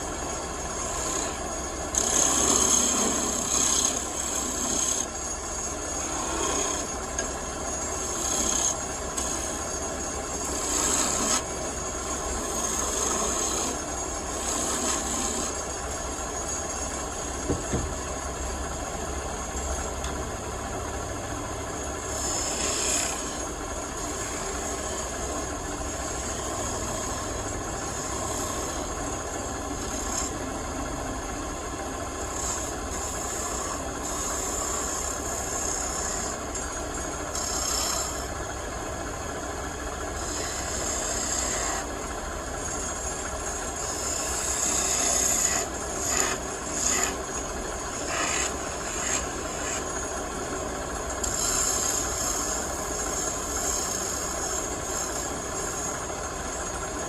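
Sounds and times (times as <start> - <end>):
tool rasping against spinning wood: 0.0 - 57.0
wood lathe motor running: 0.0 - 57.0.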